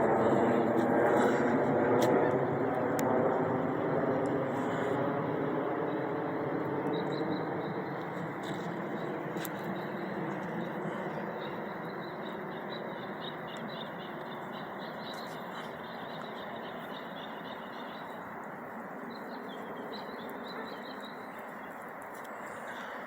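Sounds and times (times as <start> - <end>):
distant airplane rumble: 0.0 - 23.0
small birds chirping: 6.9 - 23.0.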